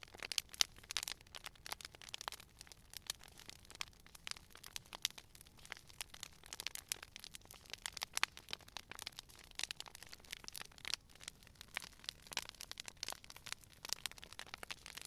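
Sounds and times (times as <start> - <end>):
wood fire popping and crackling: 0.0 - 15.0.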